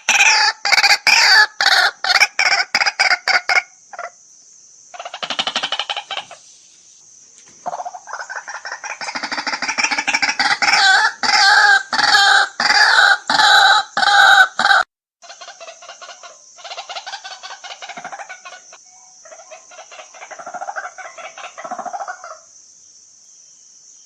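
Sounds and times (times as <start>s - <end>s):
waterhen croaking calls: 0.0s - 4.2s, 4.9s - 6.6s, 7.6s - 22.5s
steady high hiss: 3.5s - 13.4s
fast bird chattering: 4.9s - 6.5s, 7.6s - 22.2s.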